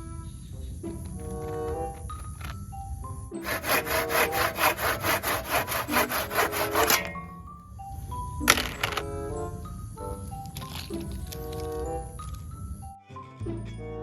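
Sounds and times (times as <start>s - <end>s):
background music: 0.0s - 14.0s
handsaw sawing wood: 3.4s - 7.4s.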